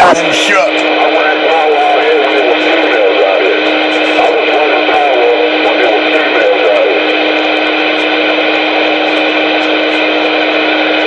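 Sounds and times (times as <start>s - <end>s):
radio static hiss: 0.0s - 7.1s.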